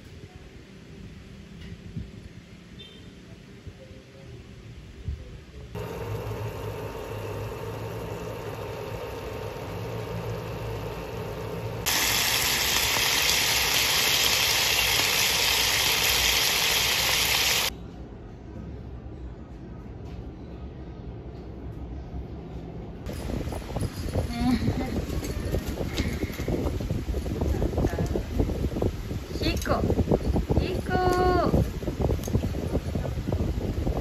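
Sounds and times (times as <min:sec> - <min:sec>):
low hum: 0:05.0 - 0:25.5
steady hiss: 0:05.8 - 0:17.7
meat sizzling in a frying pan: 0:11.9 - 0:17.7.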